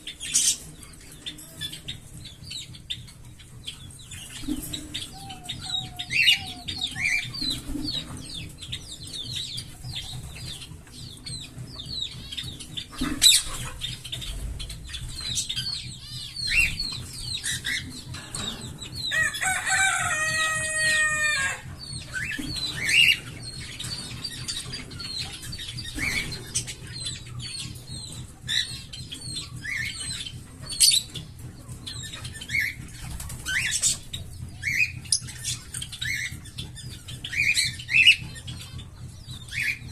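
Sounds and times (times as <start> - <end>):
parrots chirping and warbling: 0.0 - 39.9
parrot squawking call: 5.0 - 7.3.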